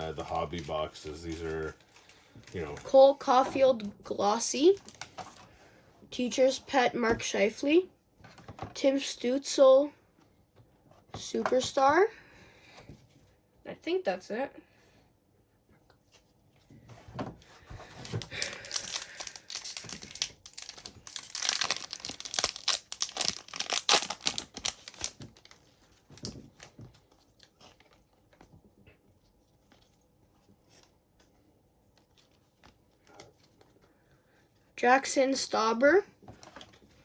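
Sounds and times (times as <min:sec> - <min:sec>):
cards being handled: 0:17.7 - 0:28.5
wrapper tearing and crinkling: 0:18.0 - 0:26.3.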